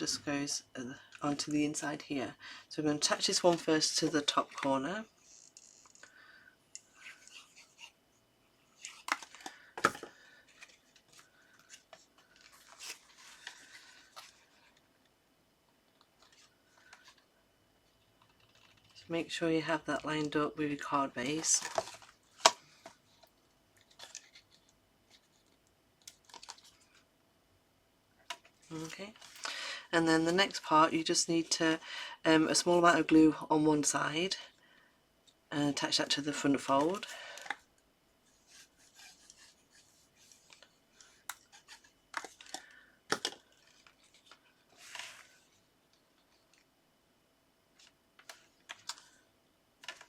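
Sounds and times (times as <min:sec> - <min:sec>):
paper rubbing and rustling: 0:38.3 - 0:42.5.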